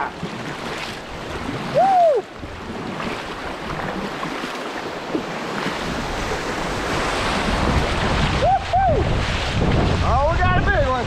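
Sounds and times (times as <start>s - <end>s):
whitewater rapids rushing: 0.0s - 11.0s
person whooping: 1.7s - 2.3s, 8.4s - 9.1s.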